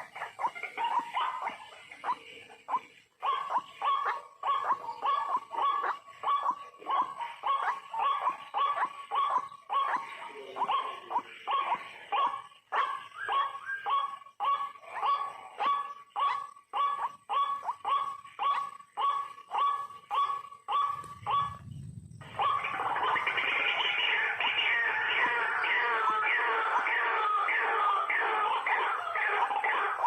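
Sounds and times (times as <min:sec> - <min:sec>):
brief low rumble: 0:21.1 - 0:22.6
waterhen harsh calls: 0:22.2 - 0:30.0.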